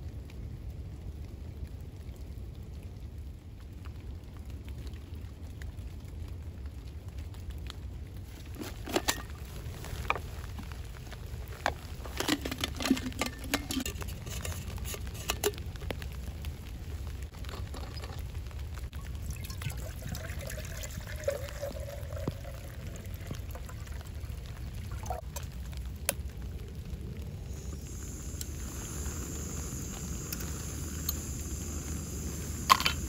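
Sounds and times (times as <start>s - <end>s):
rain pattering: 0.0s - 33.0s.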